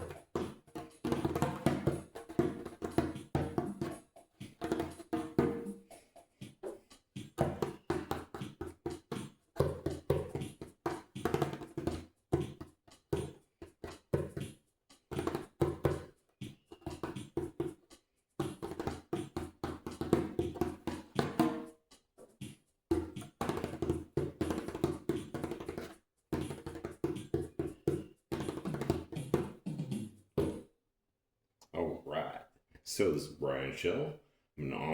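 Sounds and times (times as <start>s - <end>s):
hand slapping djembe: 0.0s - 5.8s, 6.5s - 14.5s, 15.1s - 16.1s, 16.8s - 17.8s, 18.4s - 21.7s, 22.4s - 30.6s.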